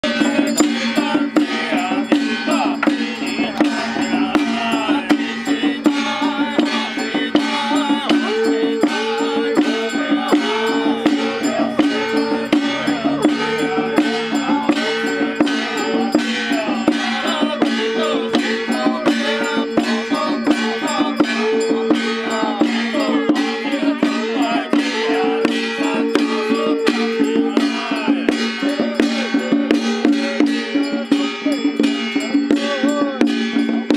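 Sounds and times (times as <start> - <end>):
metal percussion beat: 0.0 - 33.9
short repeated higher notes: 9.8 - 16.6
sustained low tone: 10.4 - 15.9.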